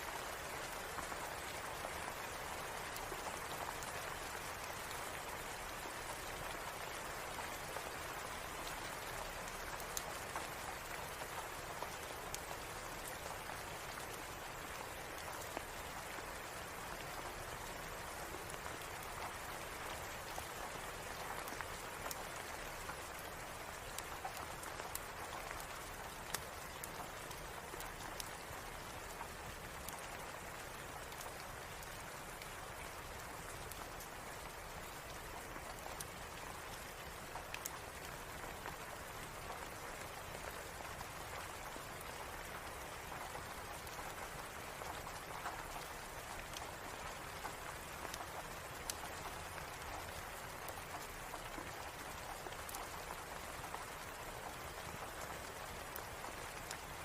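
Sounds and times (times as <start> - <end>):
steady rain falling: 0.0 - 57.0
small sharp ticks and pops: 17.6 - 57.0.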